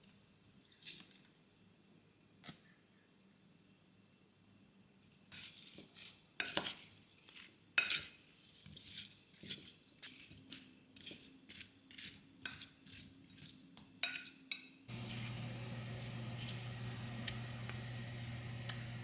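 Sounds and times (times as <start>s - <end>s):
low electrical hum: 14.9s - 19.0s.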